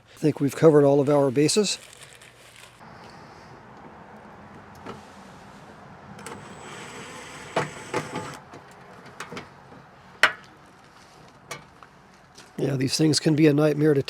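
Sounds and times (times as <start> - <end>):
electric motor whir: 6.2 - 8.4
tool clicks and knocks on metal: 7.5 - 10.5.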